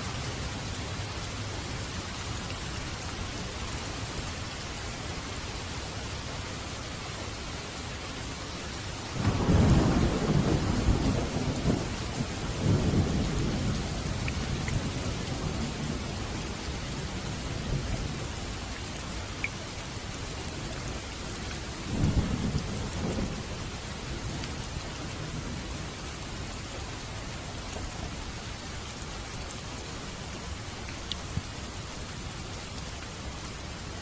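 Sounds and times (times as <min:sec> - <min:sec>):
steady rain: 0:00.0 - 0:34.0
thunder rumbling: 0:09.2 - 0:18.2, 0:21.8 - 0:25.9.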